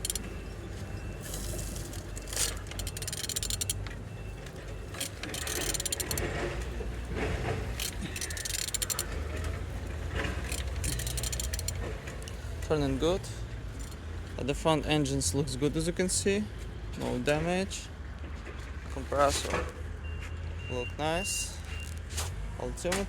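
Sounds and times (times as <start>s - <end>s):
ratchet wrench clicking: 0.0s - 0.3s, 1.4s - 3.9s, 4.9s - 6.4s, 7.7s - 9.2s, 10.3s - 12.4s, 13.8s - 14.0s
engine turning over mechanically: 0.0s - 13.2s.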